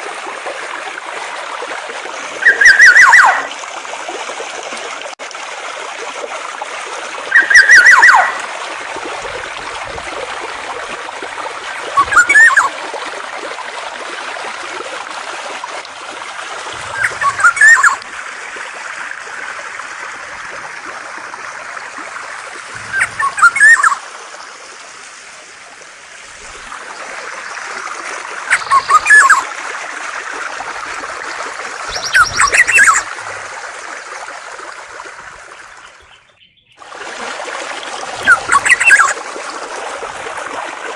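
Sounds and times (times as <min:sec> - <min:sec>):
flowing water: 0:00.0 - 0:40.9
songbird calling rapid notes: 0:02.2 - 0:03.5, 0:07.3 - 0:08.5, 0:11.7 - 0:12.7, 0:16.8 - 0:18.0, 0:22.8 - 0:24.0, 0:28.5 - 0:29.5, 0:30.7 - 0:33.2, 0:35.4 - 0:36.8, 0:38.2 - 0:39.2.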